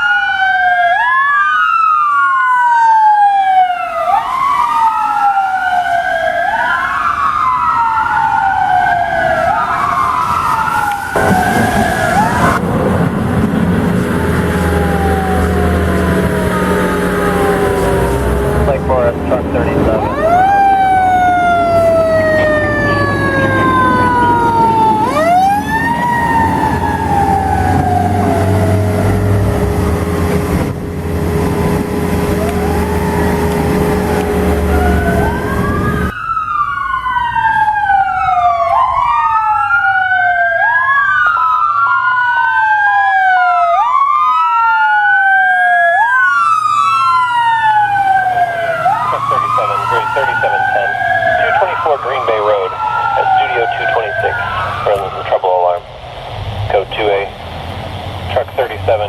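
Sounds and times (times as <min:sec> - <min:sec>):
fire truck siren: 0:00.0 - 0:59.0
heavy engine rumble: 0:11.2 - 0:25.3, 0:25.9 - 0:36.1.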